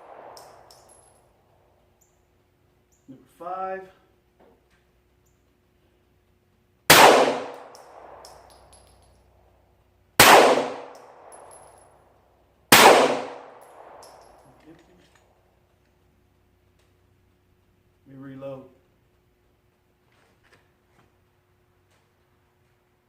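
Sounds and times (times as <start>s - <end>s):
pistol shots with echo: 0.0s - 1.0s, 6.9s - 8.8s, 10.2s - 11.8s, 12.7s - 14.4s
faint metallic clinks: 0.3s - 1.4s, 7.7s - 9.4s, 11.0s - 12.5s, 13.6s - 15.9s.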